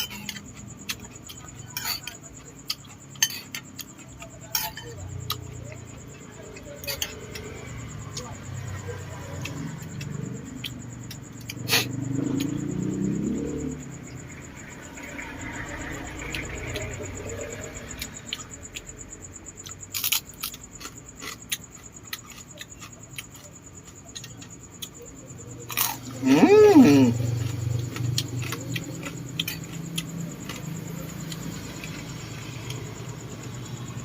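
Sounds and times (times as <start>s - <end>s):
muffled chewing: 19.6s - 33.4s.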